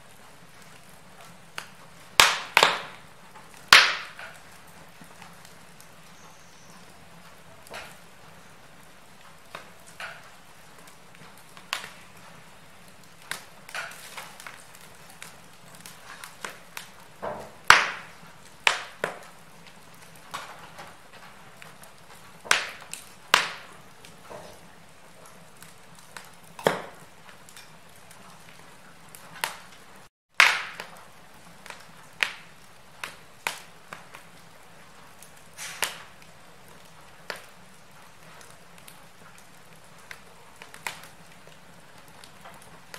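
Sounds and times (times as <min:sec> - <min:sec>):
wood fire crackling: 0:00.0 - 0:42.9.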